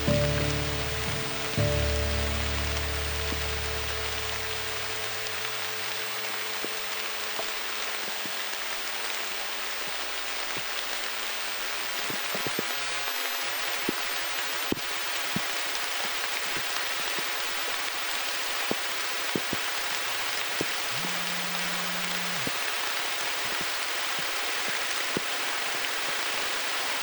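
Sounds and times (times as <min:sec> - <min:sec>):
raindrops ticking close by: 0:00.0 - 0:06.8
steady rain hiss: 0:00.0 - 0:27.0.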